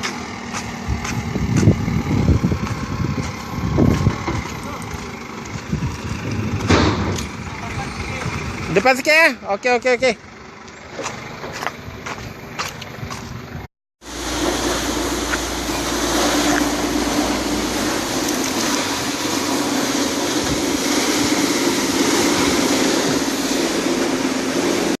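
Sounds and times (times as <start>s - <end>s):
truck engine running: 0.0s - 25.0s
droning hum: 13.5s - 25.0s
loud rushing noise: 14.0s - 25.0s.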